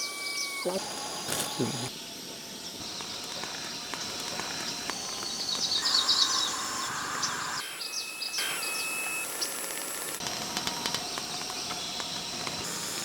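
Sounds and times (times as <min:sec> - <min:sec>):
birds chirping: 0:00.0 - 0:09.9
outdoor background noise: 0:00.0 - 0:13.0.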